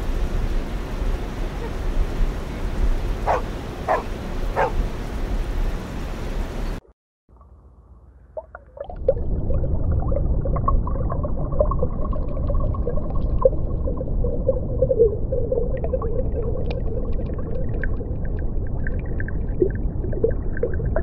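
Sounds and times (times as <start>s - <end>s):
underwater low rumble: 7.3s - 21.0s.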